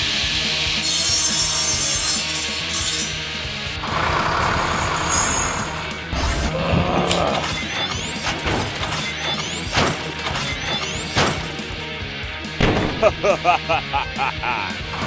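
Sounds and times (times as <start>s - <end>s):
background music: 0.0s - 15.0s
crash and shattering smashes: 7.5s - 11.9s.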